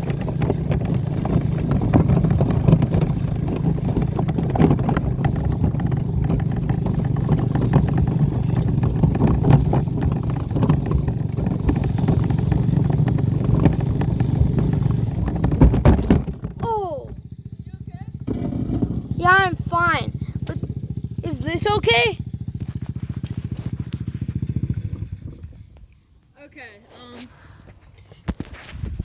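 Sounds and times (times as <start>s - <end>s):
wagon rattling over rough ground: 0.0s - 25.6s
dirt bike engine running: 0.0s - 25.8s.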